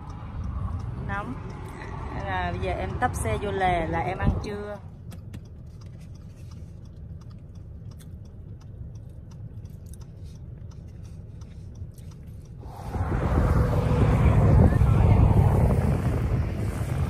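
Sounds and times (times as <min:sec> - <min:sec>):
wind noise on microphone: 0:00.0 - 0:04.8, 0:12.6 - 0:17.0
steady low rumble: 0:00.0 - 0:17.0
person chewing food: 0:05.4 - 0:12.7.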